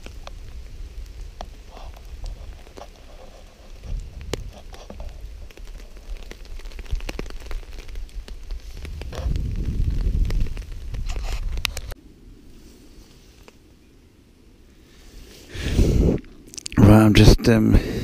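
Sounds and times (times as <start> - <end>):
raindrops tapping on a tarp: 0.0 - 12.0
low rumble: 7.7 - 12.5.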